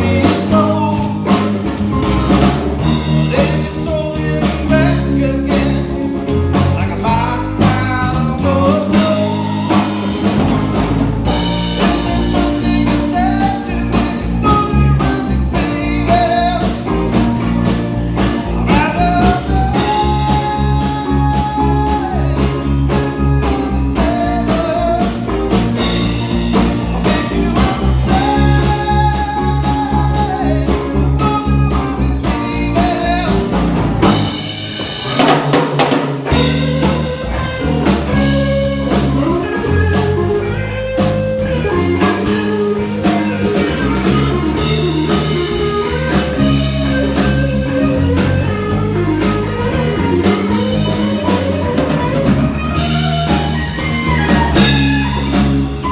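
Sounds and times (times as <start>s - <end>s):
bass guitar: 0.0s - 55.9s
drums: 0.0s - 55.9s
electric lead guitar: 0.0s - 55.9s.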